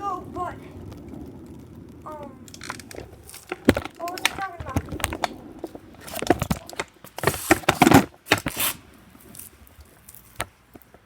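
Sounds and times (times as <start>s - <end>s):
rustling and crinkling handling noise: 0.0s - 11.0s
sharp clicks: 0.2s - 8.6s.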